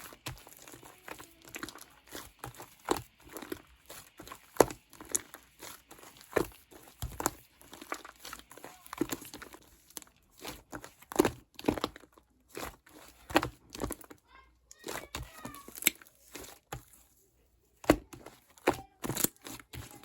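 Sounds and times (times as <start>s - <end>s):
slime squished by hand: 0.0s - 17.1s, 17.8s - 20.0s.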